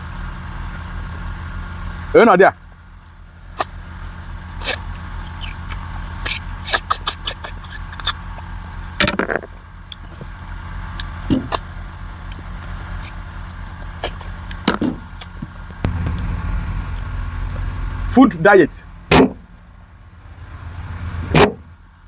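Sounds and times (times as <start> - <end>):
steady low hum: 9.6 - 22.0.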